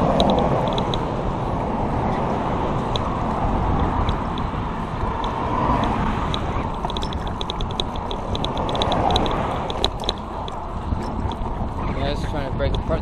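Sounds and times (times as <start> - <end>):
bike tyres rolling: 0.0 - 13.0
scattered ticks: 0.0 - 13.0
wind on microphone: 0.0 - 13.0
freewheel clicking rapidly: 2.9 - 12.8.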